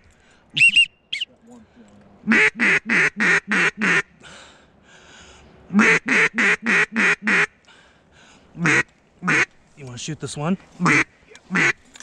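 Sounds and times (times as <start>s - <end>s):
duck quacking: 2.3s - 4.1s, 5.7s - 7.5s, 8.6s - 9.5s, 10.8s - 11.8s.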